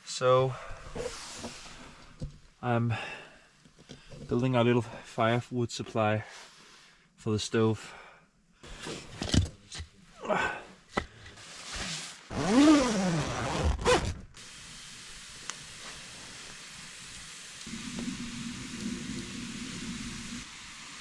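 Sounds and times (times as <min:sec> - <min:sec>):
steady low hiss: 0:00.0 - 0:12.6.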